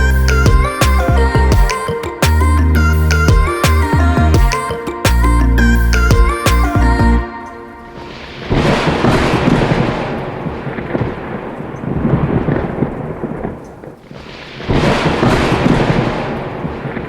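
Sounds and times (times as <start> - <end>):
thunder rumbling: 7.8 - 17.0.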